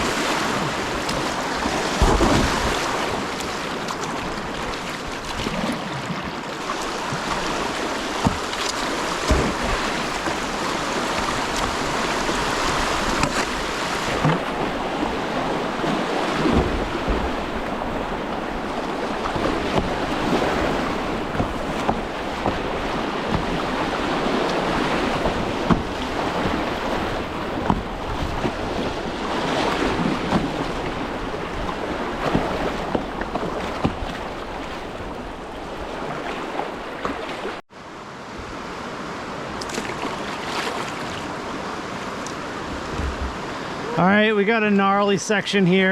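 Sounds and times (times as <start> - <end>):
sharp water splashes: 0.0 - 37.6, 39.6 - 43.4
whitewater river rushing: 0.0 - 45.9
knocks on kayak: 1.9 - 2.7, 8.2 - 8.5, 9.2 - 10.4, 21.2 - 23.7, 24.5 - 26.6, 27.6 - 28.6, 42.7 - 43.4.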